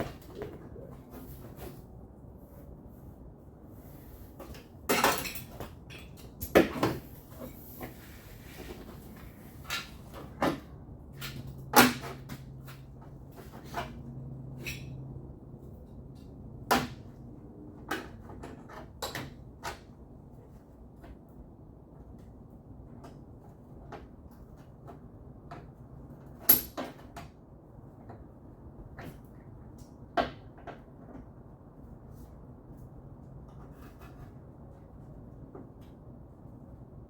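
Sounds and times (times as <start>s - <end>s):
metal tools clattering: 4.9s - 6.6s.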